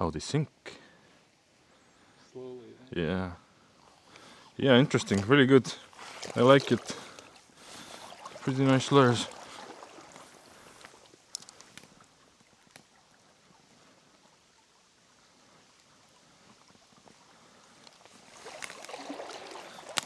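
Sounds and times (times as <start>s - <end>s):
flowing water: 1.2s - 20.0s
rustling crackling noise: 9.9s - 13.0s
light clicks: 10.8s - 12.9s.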